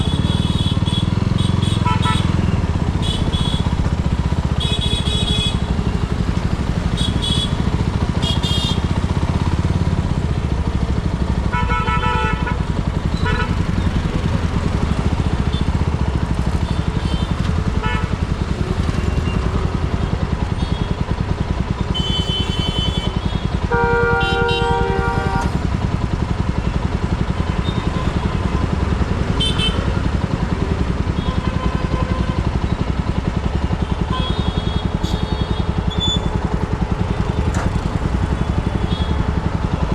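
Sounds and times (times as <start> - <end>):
vehicle horns honking: 0.0 - 3.9, 4.5 - 6.1, 6.8 - 9.0, 11.5 - 13.9, 15.0 - 21.0, 21.9 - 25.7, 29.3 - 30.1, 31.1 - 32.6, 34.0 - 36.5, 37.3 - 39.4
motorcycle engine running: 0.0 - 39.9.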